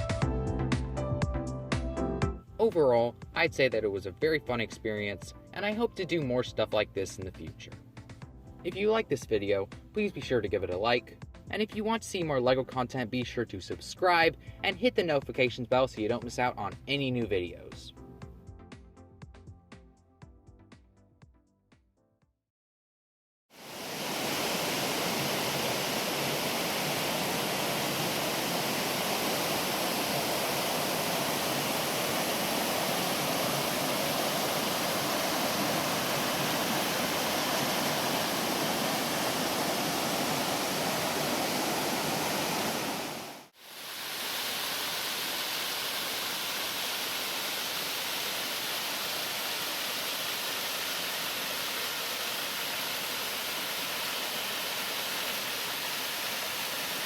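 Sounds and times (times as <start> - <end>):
waterfall rushing: 23.6 - 57.0.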